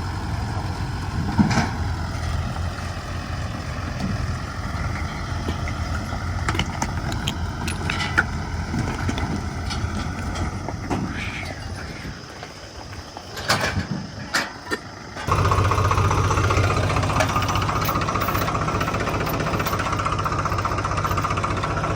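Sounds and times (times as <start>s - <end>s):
tractor diesel engine running: 0.0s - 21.9s
short rattles and clanks: 3.9s - 11.7s, 13.2s - 21.9s.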